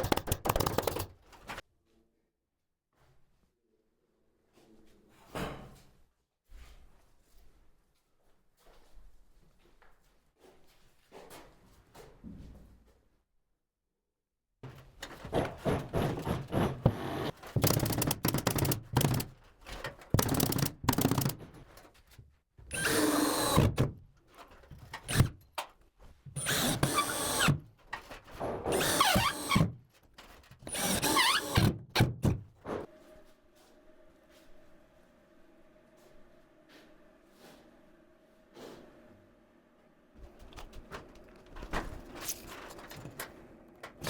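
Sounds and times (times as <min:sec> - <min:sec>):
cordless drill driving screws: 0:22.7 - 0:23.8, 0:26.4 - 0:27.6, 0:28.7 - 0:29.7, 0:30.6 - 0:31.8.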